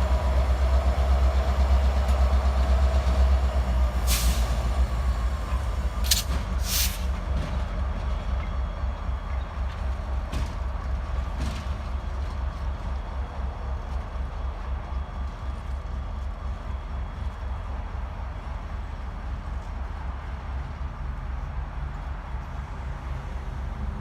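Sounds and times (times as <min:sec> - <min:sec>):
sharp train noises: 0:00.0 - 0:09.6
diesel locomotive rumbling: 0:00.0 - 0:24.0.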